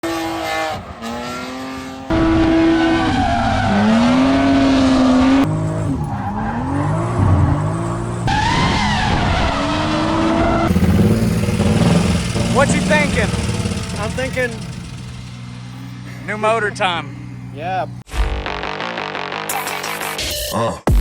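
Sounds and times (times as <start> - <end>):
car engines revving: 0.0 - 18.0
tyres squealing: 5.3 - 17.1.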